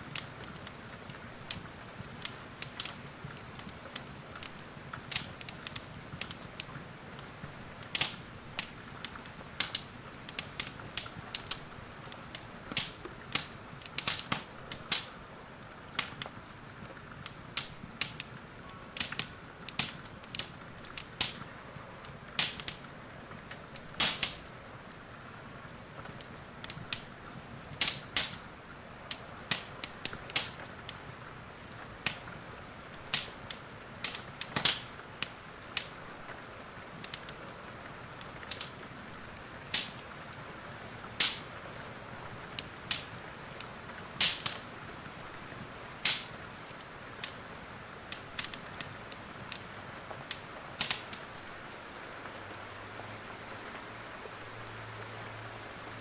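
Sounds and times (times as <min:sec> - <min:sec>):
rain hiss: 0:00.0 - 0:56.0
wood fire crackling: 0:00.0 - 0:56.0.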